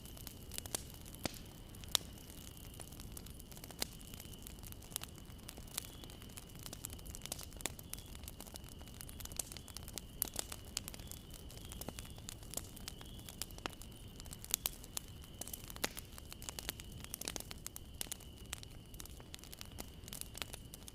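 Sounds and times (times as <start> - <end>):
wood fire crackling: 0.0 - 20.9.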